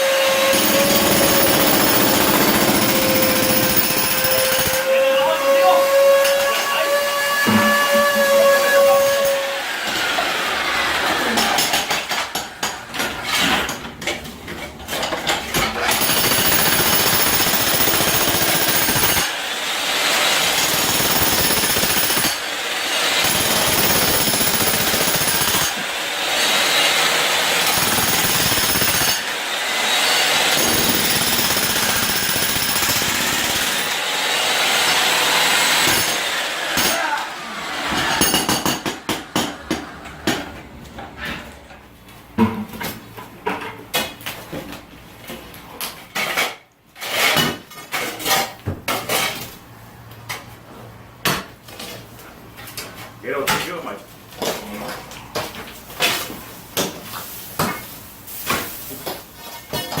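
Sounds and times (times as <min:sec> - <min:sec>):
jackhammer breaking concrete: 0:00.0 - 0:04.8, 0:09.8 - 0:13.7, 0:14.9 - 0:40.4.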